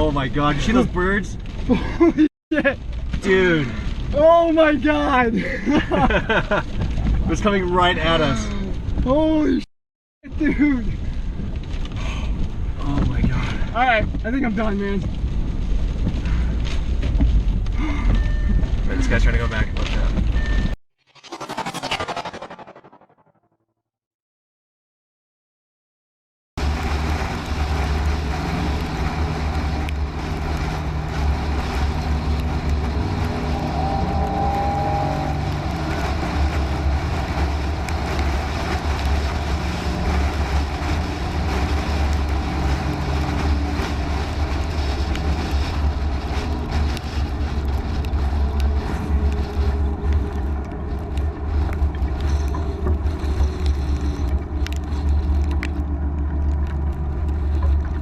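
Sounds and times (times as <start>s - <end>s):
vehicle engine rumble: 0.0s - 9.6s, 10.2s - 20.6s, 26.6s - 58.0s
road noise hiss: 26.6s - 58.0s.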